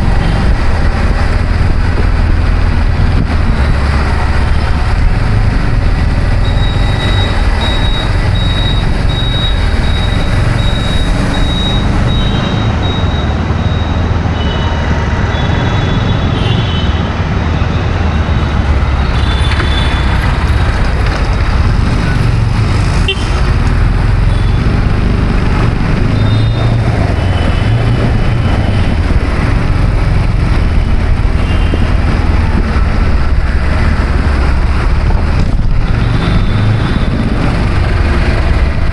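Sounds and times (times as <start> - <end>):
road traffic rumble: 0.0 - 38.9
short high beeps: 6.4 - 14.7.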